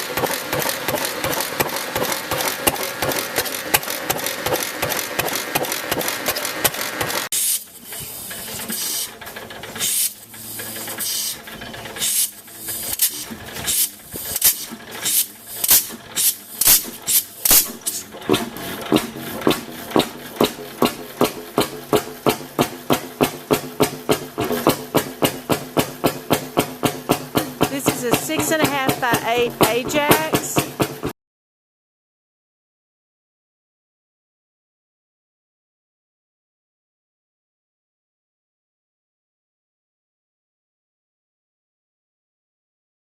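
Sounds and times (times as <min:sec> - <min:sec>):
old engine exhaust beats: 0:00.0 - 0:31.1
stationary engine running: 0:00.0 - 0:31.1.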